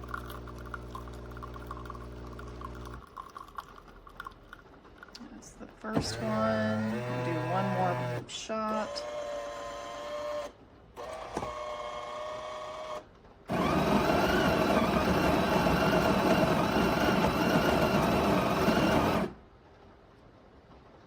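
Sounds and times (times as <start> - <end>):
coffee bean grinder running: 0.0 - 3.6, 6.0 - 10.4, 11.0 - 19.4
short motor hums: 6.0 - 9.2.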